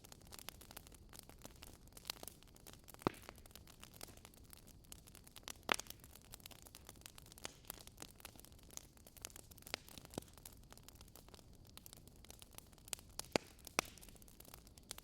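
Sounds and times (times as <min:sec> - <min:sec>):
wood fire crackling: 0:00.0 - 0:15.0
loud fire pops: 0:00.3 - 0:04.3, 0:12.3 - 0:15.0.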